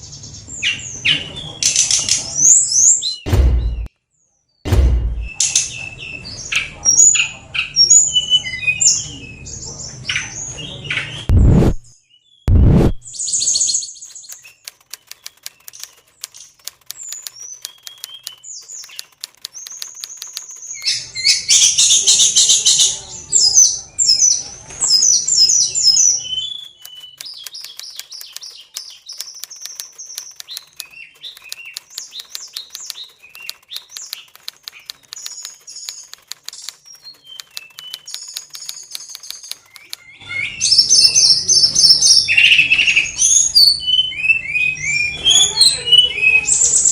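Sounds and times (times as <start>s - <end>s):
bird clicks: 1.6s - 2.3s, 14.0s - 21.6s, 26.5s - 40.1s
bird whistles and trills: 13.1s - 46.9s.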